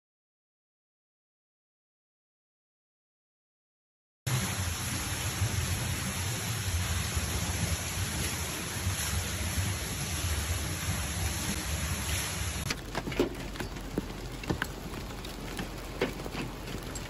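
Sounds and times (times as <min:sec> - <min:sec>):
rushing storm noise: 0:04.3 - 0:17.0.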